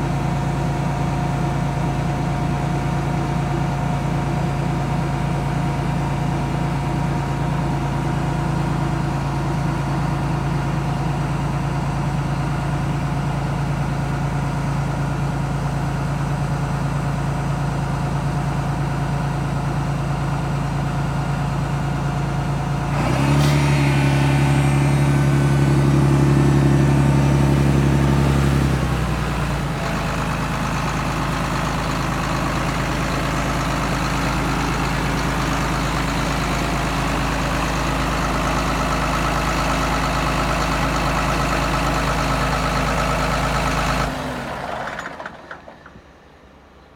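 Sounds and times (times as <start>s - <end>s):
tractor diesel engine idling and revving: 0.0s - 46.9s.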